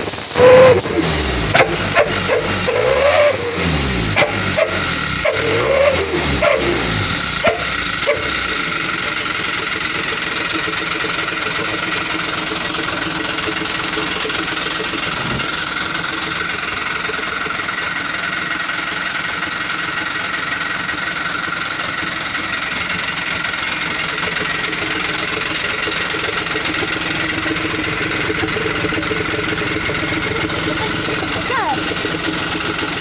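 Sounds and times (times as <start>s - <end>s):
exhaust whistling tone: 0.0s - 9.8s
truck engine idling: 0.0s - 33.0s.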